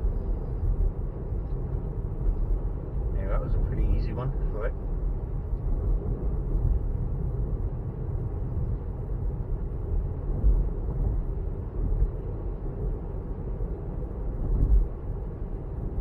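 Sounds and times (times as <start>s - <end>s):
tyre and road noise: 0.0s - 16.0s
low bumps: 14.2s - 15.2s.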